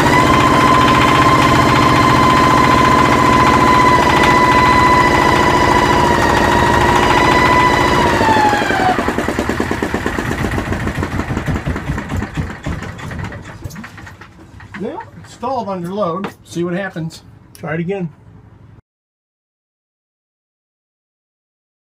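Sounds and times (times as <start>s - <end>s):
high whine: 0.0s - 9.1s
diesel engine knocking: 0.0s - 15.4s.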